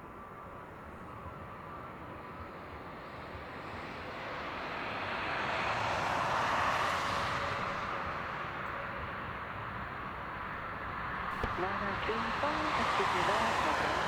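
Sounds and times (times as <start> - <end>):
jet engines whooshing: 11.3 - 14.0.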